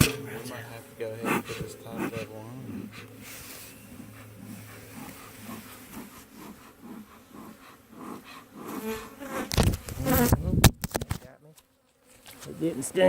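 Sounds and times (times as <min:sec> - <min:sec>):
bees buzzing: 0:00.0 - 0:10.4
sharp bumps: 0:00.0 - 0:11.0.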